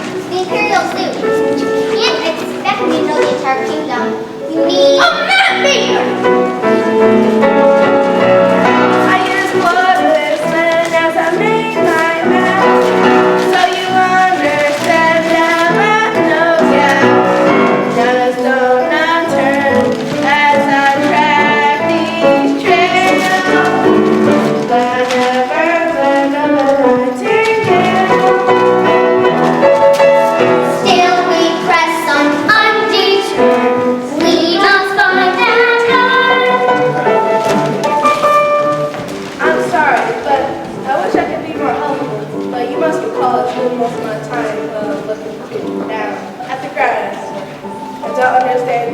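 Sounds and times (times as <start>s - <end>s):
instrumental accompaniment: 0.0s - 48.9s
children singing: 8.6s - 29.6s, 30.3s - 40.4s.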